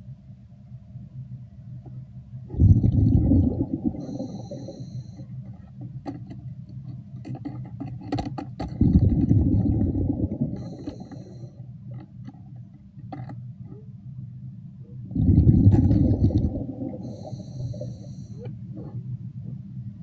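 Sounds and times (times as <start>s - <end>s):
exhaled bubbles rumbling: 2.5s - 5.3s, 8.7s - 12.1s, 14.9s - 19.7s
regulator inhaling hiss: 4.0s - 5.4s, 10.4s - 11.7s, 16.9s - 18.6s.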